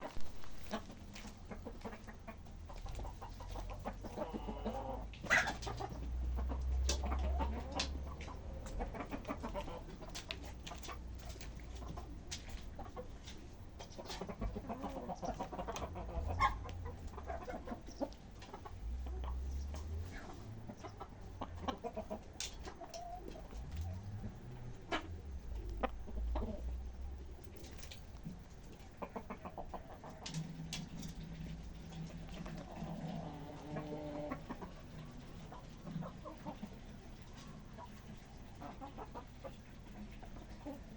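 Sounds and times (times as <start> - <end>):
chickens clucking: 0.0 - 40.9
low rumbles: 23.3 - 28.7.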